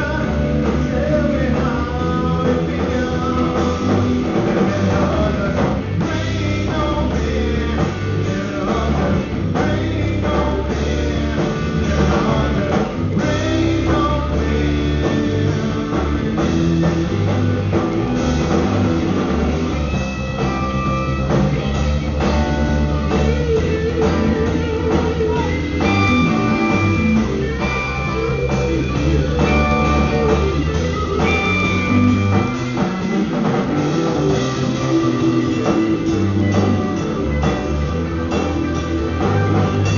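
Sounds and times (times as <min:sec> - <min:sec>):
live rock-blues band: 0:00.0 - 0:39.9
long high held notes: 0:20.0 - 0:39.9.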